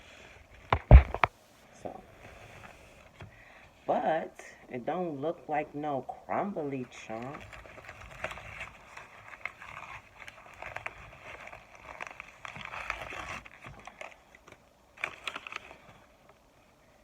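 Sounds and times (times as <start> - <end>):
cornstarch crunching and crackling: 6.9 - 16.2.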